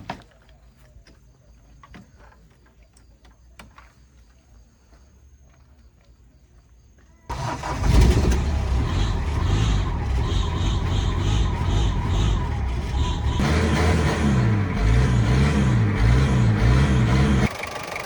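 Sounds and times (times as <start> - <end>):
truck engine starting and running: 7.3 - 18.0.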